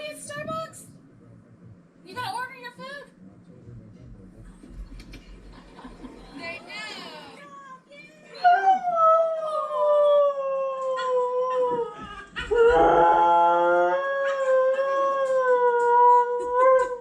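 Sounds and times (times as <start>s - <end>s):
husky howling: 8.5s - 17.0s
second dog howling: 8.5s - 17.0s.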